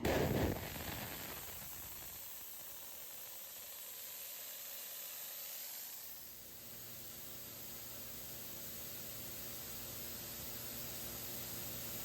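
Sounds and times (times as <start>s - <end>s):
compressed air hissing: 0.0s - 8.4s.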